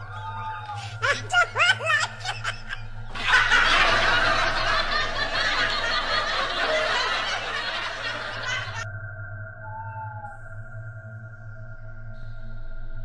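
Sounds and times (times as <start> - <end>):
laughter and shrieking voices: 0.6 - 8.8.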